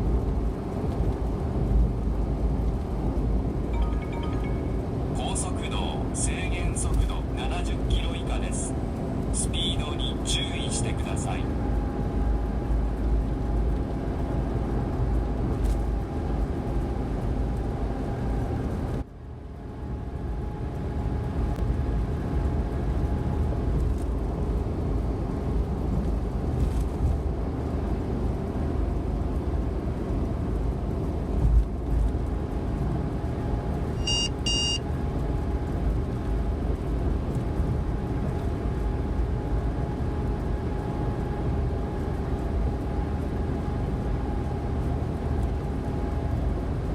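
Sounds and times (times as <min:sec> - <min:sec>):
engine and road rumble: 0:00.0 - 0:46.9
short electronic beeps: 0:34.0 - 0:34.8.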